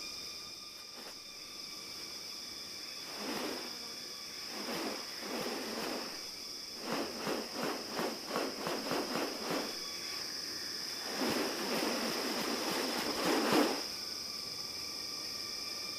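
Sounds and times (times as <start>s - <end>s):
insects droning: 0.0s - 15.9s
rapid pulsed sounds: 2.9s - 14.1s.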